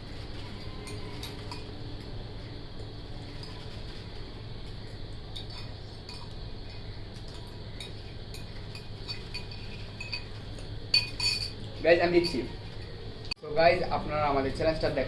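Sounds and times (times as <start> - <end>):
cutlery clinking on dishes: 0.6 - 1.8, 7.3 - 12.6.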